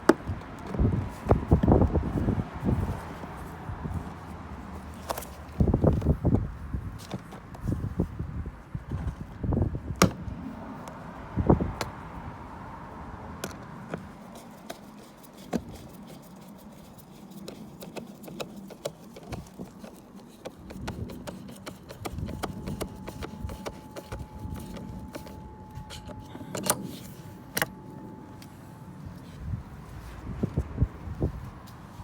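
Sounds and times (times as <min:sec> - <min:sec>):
clicks and knocks of handling: 0:13.4 - 0:27.8
faint steady whine: 0:22.2 - 0:31.7.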